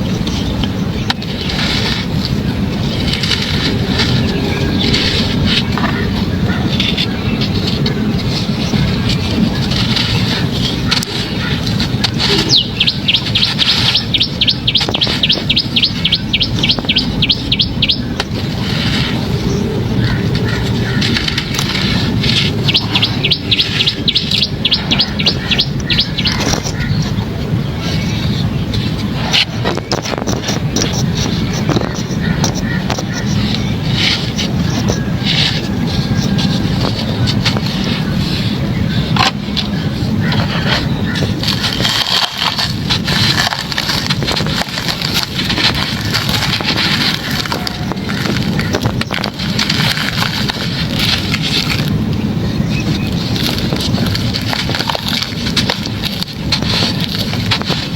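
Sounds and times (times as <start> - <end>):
stony chunks crunching: 0.0 - 27.3, 27.9 - 57.9
steady low rumble: 0.0 - 57.9
wind on microphone: 0.0 - 57.9
small bird chirping rapidly: 2.7 - 27.1.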